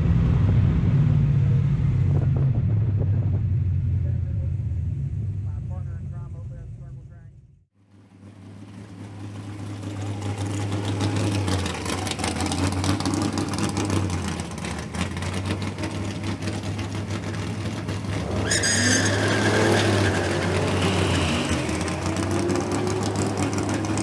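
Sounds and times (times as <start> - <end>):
drag car engines running: 7.8 - 24.0
car engine revving: 7.9 - 24.0
high squeal: 18.3 - 22.0.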